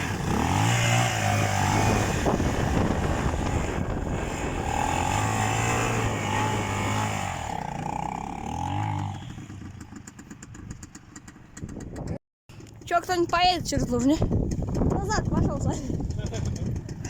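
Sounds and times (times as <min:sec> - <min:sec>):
off-road vehicle engine revving: 0:00.0 - 0:11.4.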